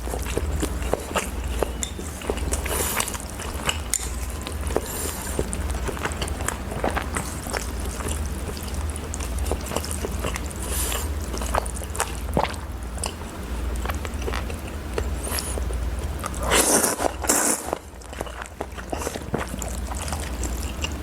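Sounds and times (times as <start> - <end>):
chewing with wet mouth clicks: 0.0 - 21.0.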